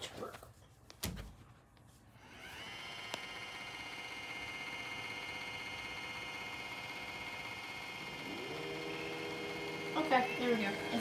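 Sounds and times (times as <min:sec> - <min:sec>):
robot vacuum motor whine: 0:02.2 - 0:11.0.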